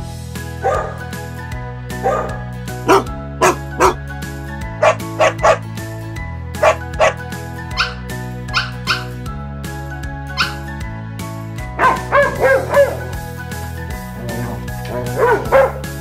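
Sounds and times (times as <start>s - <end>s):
background music: 0.0s - 16.0s
dog barking: 0.6s - 1.1s, 2.0s - 4.0s, 4.8s - 5.6s, 6.6s - 9.1s, 10.3s - 10.6s, 11.8s - 13.2s, 14.9s - 16.0s.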